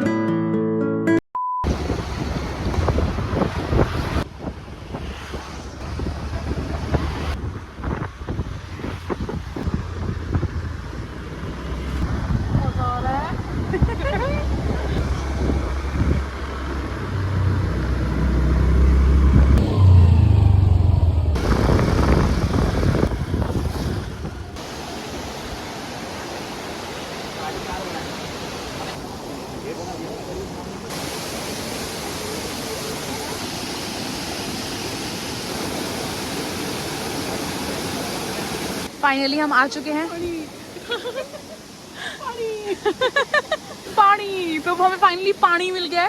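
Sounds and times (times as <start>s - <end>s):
road and wind noise: 1.6s - 46.0s
waterfall rushing water: 1.7s - 4.5s, 21.4s - 46.0s
scooter engine rumble: 12.1s - 25.0s.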